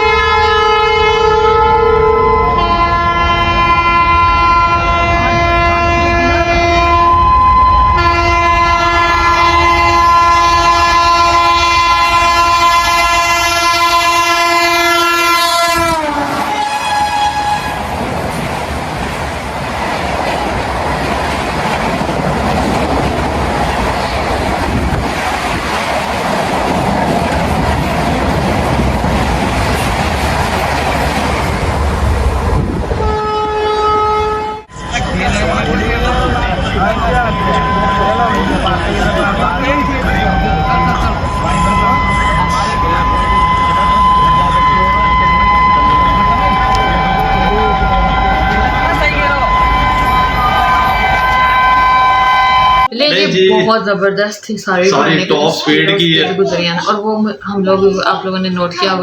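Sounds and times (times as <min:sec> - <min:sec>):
locomotive horn chord: 0:00.0 - 0:18.0, 0:33.0 - 0:36.1, 0:36.9 - 0:53.8
train coaches rushing and clattering: 0:00.0 - 0:54.1, 0:54.8 - 0:59.0.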